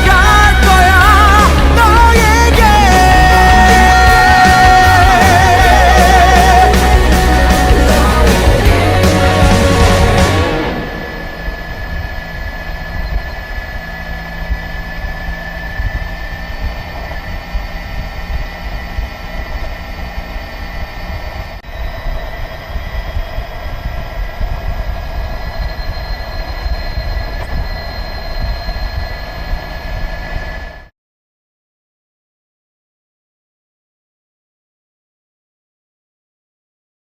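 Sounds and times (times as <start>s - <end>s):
electric motor whine: 4.8s - 30.9s.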